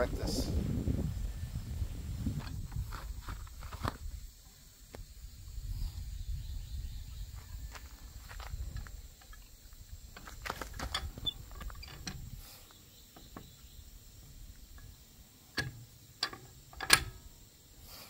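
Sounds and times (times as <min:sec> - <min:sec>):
wheel nuts and brace clanking: 0:15.6 - 0:17.3.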